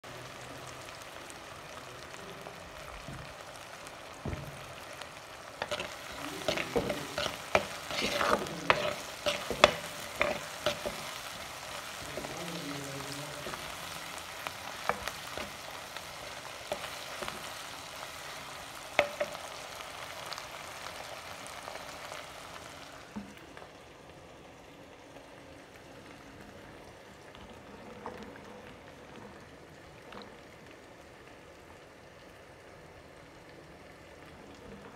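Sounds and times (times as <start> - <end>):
vegetables sizzling in hot oil: 0.0 - 27.8
spatula scraping a pan: 5.6 - 11.4.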